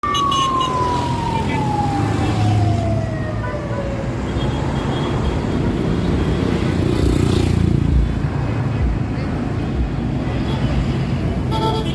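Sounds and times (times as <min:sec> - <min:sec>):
siren winding down: 0:00.0 - 0:03.8
vehicle traffic rumble: 0:00.0 - 0:11.9.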